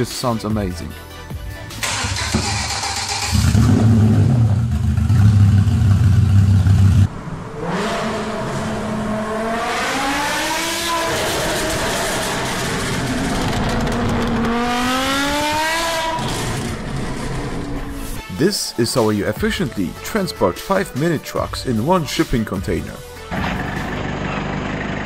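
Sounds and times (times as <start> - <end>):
car engine accelerating hard: 1.8 - 18.2, 23.3 - 25.0
car engine running deep: 2.3 - 7.5, 11.1 - 18.1, 23.3 - 25.0.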